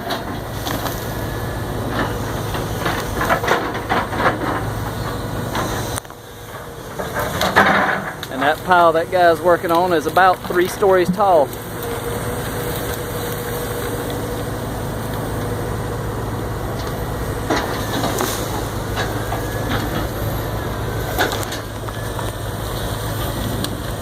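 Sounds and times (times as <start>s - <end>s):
heavy engine humming: 0.0s - 24.0s
debris cracking and knocking: 6.9s - 8.6s.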